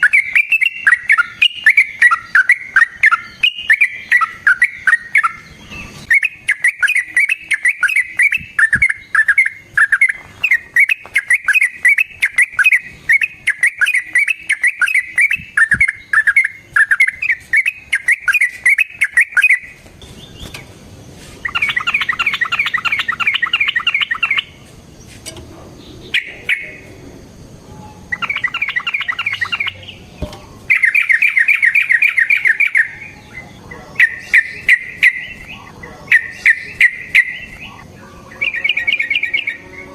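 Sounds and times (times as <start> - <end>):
bird rattling trills: 0.0 - 20.6, 21.4 - 24.6, 28.0 - 30.0, 30.7 - 33.2
bulbul chattering song: 0.0 - 20.7, 21.4 - 25.0, 25.8 - 39.9.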